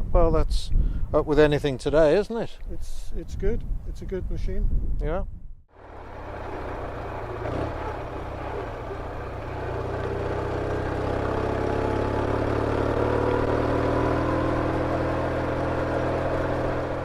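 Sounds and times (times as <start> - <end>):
motorcycle engine running: 5.7 - 17.0.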